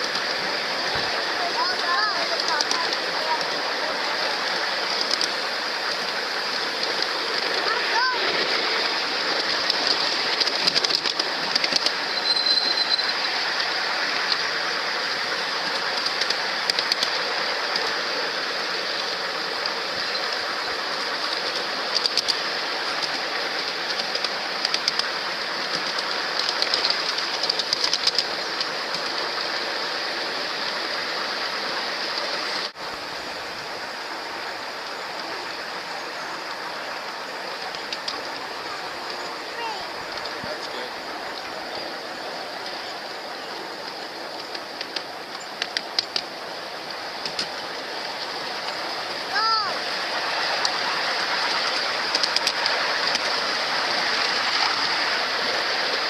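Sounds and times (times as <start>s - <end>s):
ride-on train rolling on track: 0.0s - 56.0s
wheels clicking over rail joints: 0.0s - 56.0s
high squeal: 12.0s - 13.4s.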